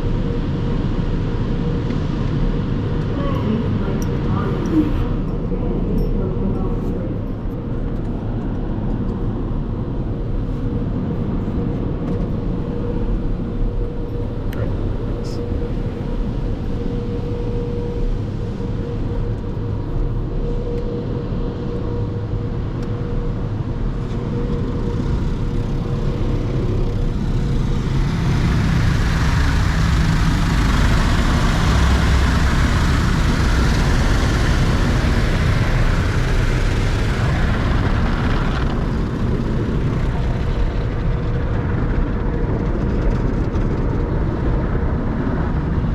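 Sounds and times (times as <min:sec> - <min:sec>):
car wash low rumble: 0:00.0 - 0:42.8
car wash rushing noise: 0:25.0 - 0:41.2.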